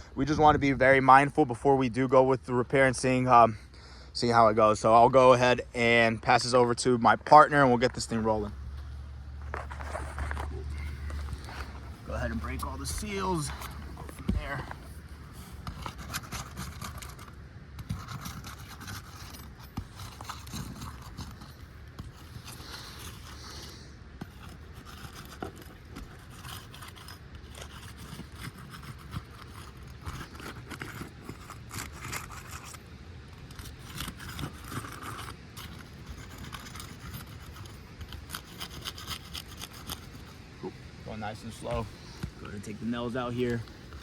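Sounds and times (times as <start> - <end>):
pry tool scraping shingles: 9.5 - 40.5.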